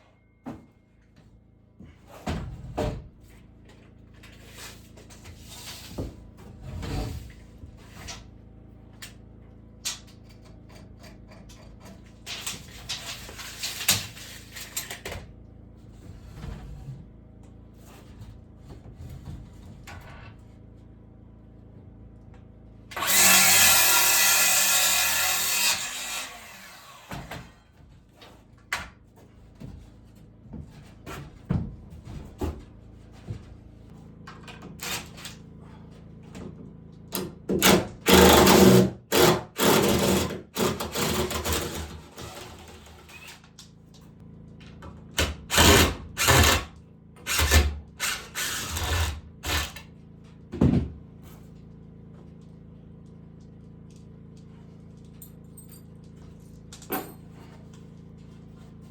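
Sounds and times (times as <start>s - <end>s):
power drill running in bursts: 23.0s - 27.2s, 45.5s - 46.7s, 47.3s - 49.8s.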